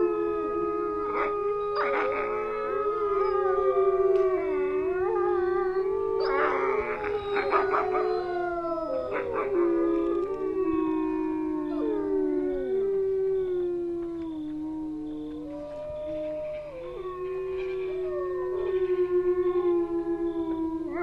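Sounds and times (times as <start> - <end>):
wolves howling: 0.0 - 21.0
wolves yelping: 1.0 - 12.6.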